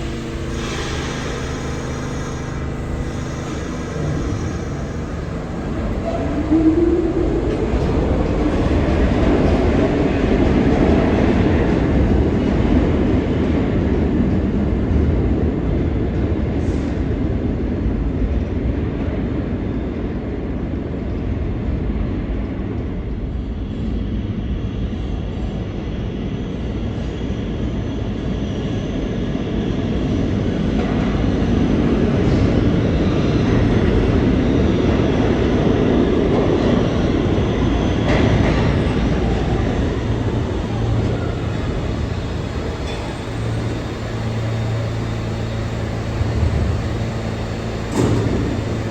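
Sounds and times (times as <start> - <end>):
train wheels rumbling on rails: 0.0 - 13.6, 35.5 - 48.9.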